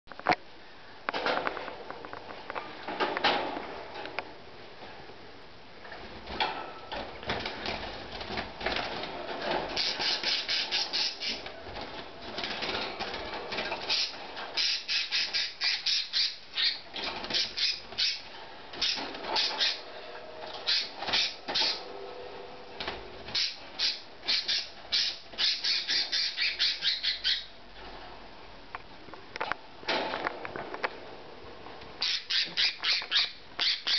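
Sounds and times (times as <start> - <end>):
bird squawking: 9.8 - 11.4, 13.9 - 19.8, 20.6 - 21.8, 23.3 - 27.5, 32.0 - 33.9.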